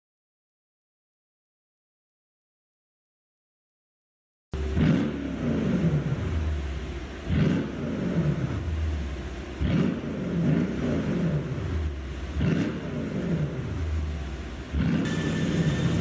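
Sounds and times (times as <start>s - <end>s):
car engine revving: 4.6s - 16.0s.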